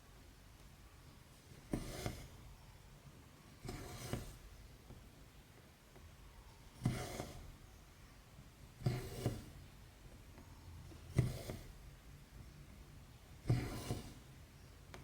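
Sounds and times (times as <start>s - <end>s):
thread drawn with a rasp: 1.7s - 2.4s, 3.6s - 4.5s, 6.8s - 7.6s, 8.8s - 9.7s, 10.9s - 11.8s, 13.4s - 14.3s.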